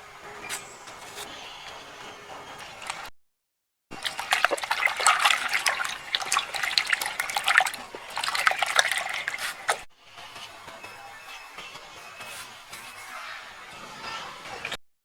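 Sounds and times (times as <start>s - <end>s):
water splashing and trickling: 2.6s - 3.1s, 3.9s - 9.9s.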